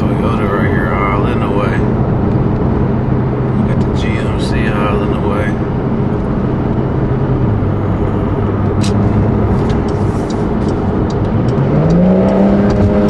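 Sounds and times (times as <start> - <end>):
car engine and tyre noise: 0.0 - 13.0
light ticking: 8.8 - 13.0.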